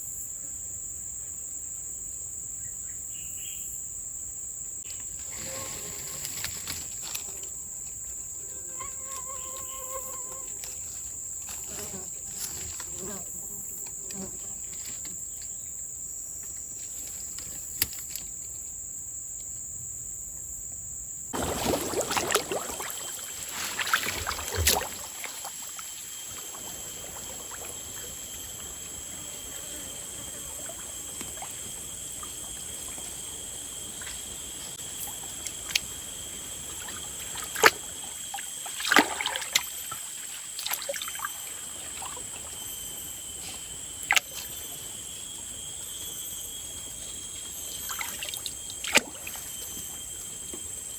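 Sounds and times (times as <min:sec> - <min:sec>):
crickets droning: 0:00.0 - 0:50.9
water splashing and sloshing: 0:21.4 - 0:46.1, 0:46.8 - 0:50.9.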